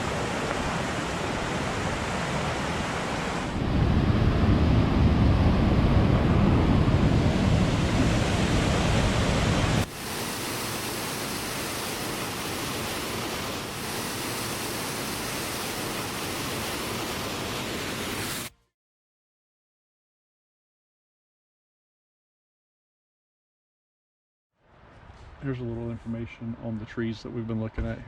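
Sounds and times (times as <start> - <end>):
rushing water: 0.0 - 3.6, 7.3 - 18.5
wind buffeting microphone: 0.0 - 9.9.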